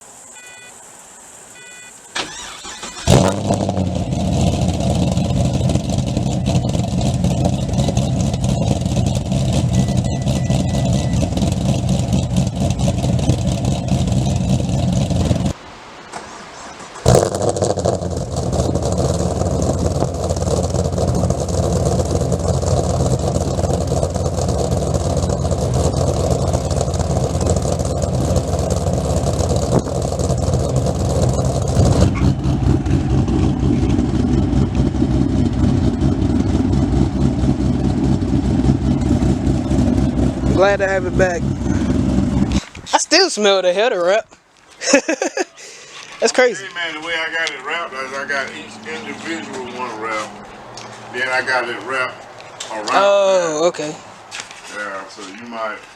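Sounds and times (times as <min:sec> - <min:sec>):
short beeps: 0:00.4 - 0:00.8, 0:01.6 - 0:02.0, 0:09.6 - 0:11.4
car engine starting and idling: 0:01.5 - 0:43.3, 0:46.1 - 0:55.8.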